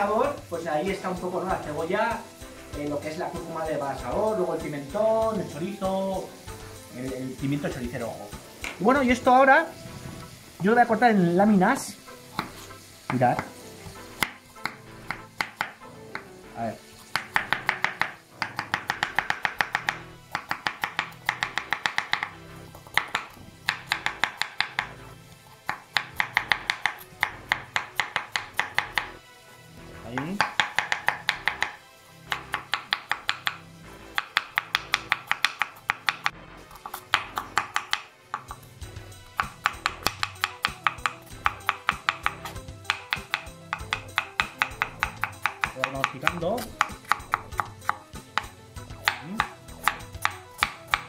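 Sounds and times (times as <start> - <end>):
knife chopping on cutting board: 12.3 - 13.6, 14.2 - 16.3, 17.1 - 25.0, 25.7 - 29.1, 30.2 - 33.6, 34.2 - 38.7, 39.3 - 51.0.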